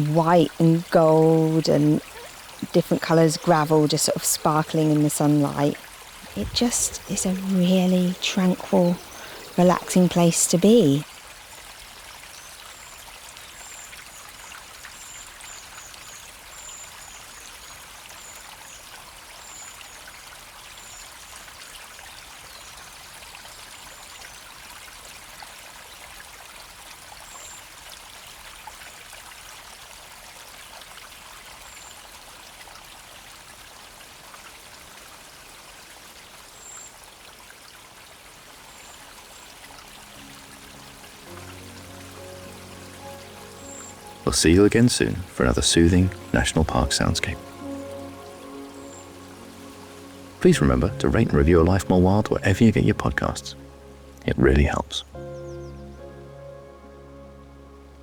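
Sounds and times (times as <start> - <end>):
river water rushing: 0.0 - 11.3, 38.4 - 56.1.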